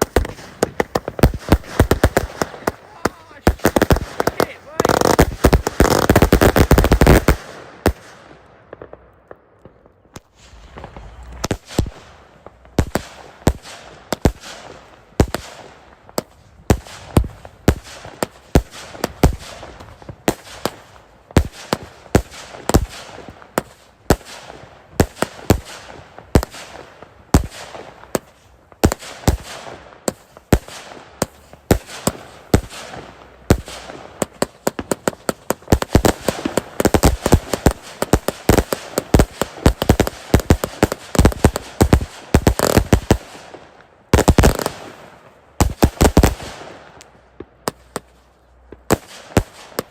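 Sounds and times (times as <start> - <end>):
fireworks bangs: 0.0 - 9.0, 9.6 - 15.4, 26.4 - 48.1
fireworks crackling: 0.0 - 49.9.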